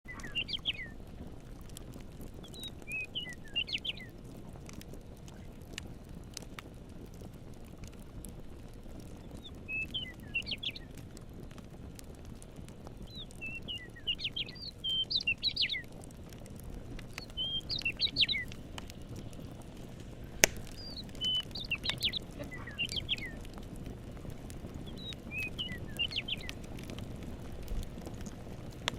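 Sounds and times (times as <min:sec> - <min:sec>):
songbird chirping: 0:00.1 - 0:01.0, 0:02.4 - 0:04.2, 0:09.2 - 0:11.0, 0:13.0 - 0:15.9, 0:17.0 - 0:18.6, 0:20.4 - 0:23.5, 0:24.8 - 0:26.6
campfire crackling: 0:00.1 - 0:28.9.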